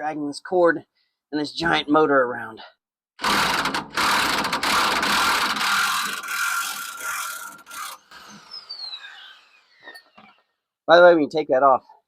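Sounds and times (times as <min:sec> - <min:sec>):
electric impact wrench hammering: 0:03.2 - 0:08.5.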